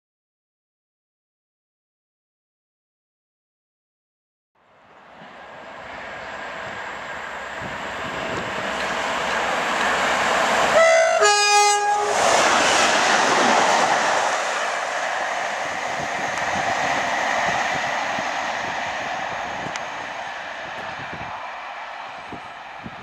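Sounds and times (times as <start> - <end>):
train approaching: 4.6 - 23.0
two-tone train horn: 10.7 - 12.5.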